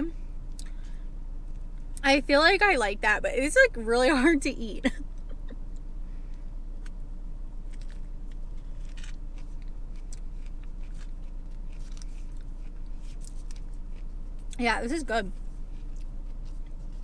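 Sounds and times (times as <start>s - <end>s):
steady low hum: 0.0s - 17.0s
person chewing with mouth clicks: 7.7s - 14.6s.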